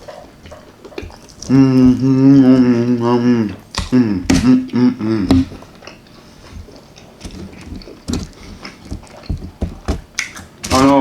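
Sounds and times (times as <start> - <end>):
person humming: 1.4 - 5.7.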